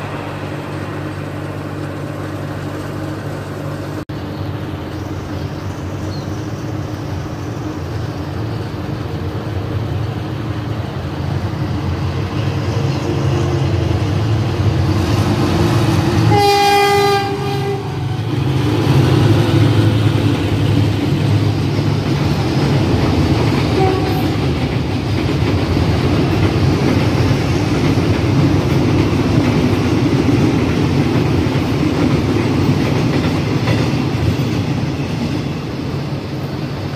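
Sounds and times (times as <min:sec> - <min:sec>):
locomotive engine drone: 0:00.0 - 0:36.9
train horn blast: 0:16.2 - 0:18.3, 0:23.7 - 0:24.5.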